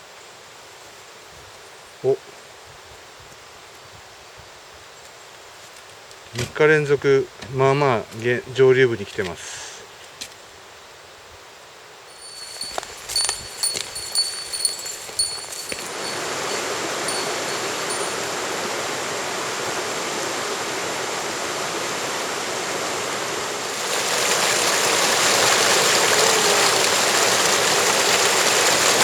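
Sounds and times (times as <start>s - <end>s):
faint high ringing tones: 12.1s - 18.7s
stream rushing over rocks: 22.6s - 29.0s.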